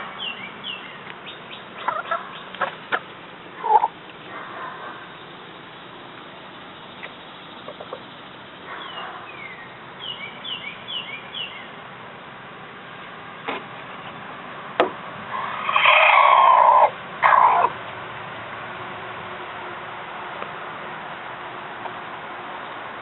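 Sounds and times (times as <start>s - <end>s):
chickens calling: 0.0s - 5.2s, 7.0s - 11.6s, 15.3s - 17.8s.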